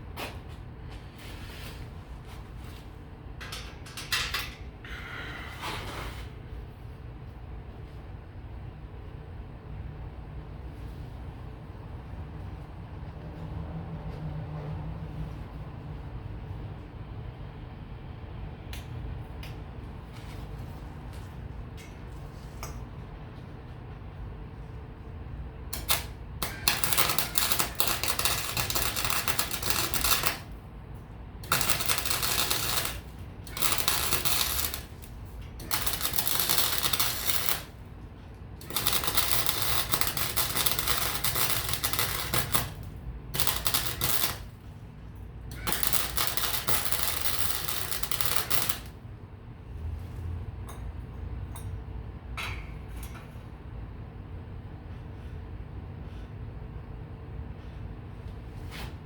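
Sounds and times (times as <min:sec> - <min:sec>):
welding arc crackling: 0:25.7 - 0:30.6, 0:31.4 - 0:37.9, 0:38.6 - 0:44.6, 0:45.5 - 0:49.0.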